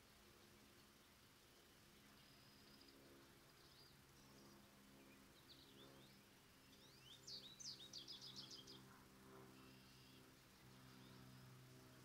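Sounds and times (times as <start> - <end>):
songbird singing: 0.0 - 12.0
steady low hum: 0.0 - 12.0.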